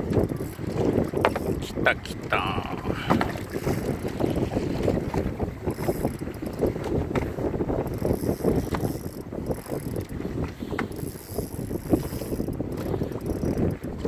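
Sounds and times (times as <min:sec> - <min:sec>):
wind buffeting microphone: 0:00.0 - 0:02.3, 0:02.9 - 0:14.0
fishing reel clicking rattle: 0:07.8 - 0:10.1, 0:10.9 - 0:14.0.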